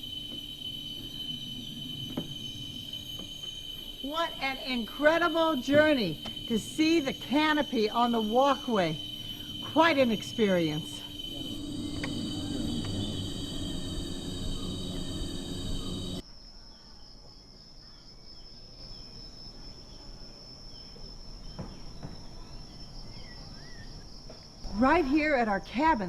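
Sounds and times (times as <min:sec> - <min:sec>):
insects droning: 0:00.0 - 0:26.0
faint bird chirps: 0:03.4 - 0:24.1.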